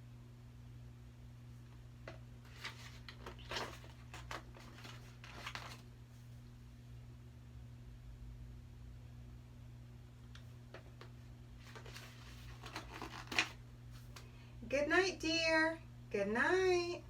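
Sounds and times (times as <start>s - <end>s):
steady low hum: 0.0s - 17.0s
book pages rustling: 2.4s - 5.9s, 10.8s - 14.2s.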